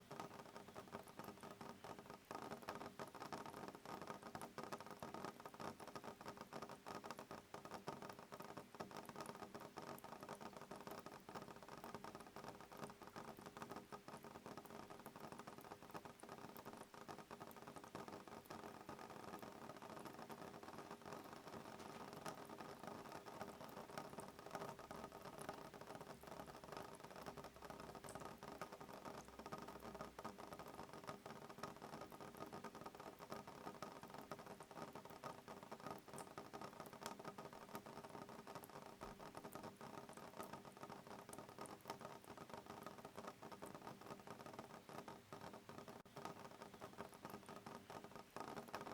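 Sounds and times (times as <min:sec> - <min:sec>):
rain pattering on window: 0:00.0 - 0:48.9.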